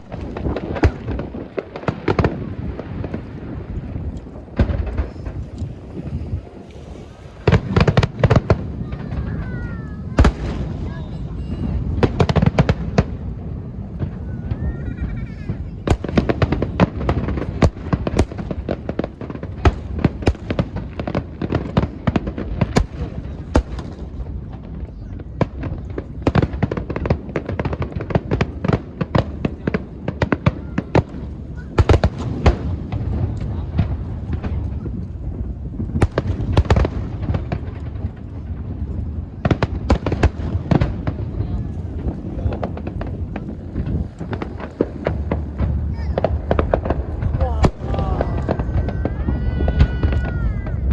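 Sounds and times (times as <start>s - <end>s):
fireworks cracking and banging: 0.0s - 50.9s
low rumble: 32.2s - 50.9s.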